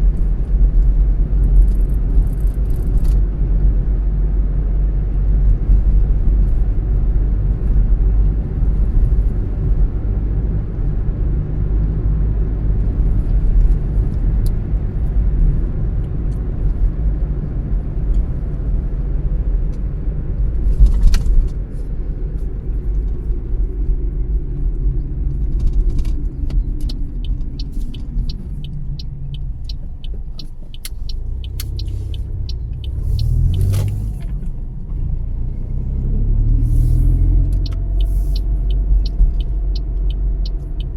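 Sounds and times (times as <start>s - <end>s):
car engine and tyre rumble: 0.0s - 40.9s
fast regular ticking: 26.7s - 34.0s, 37.6s - 40.9s.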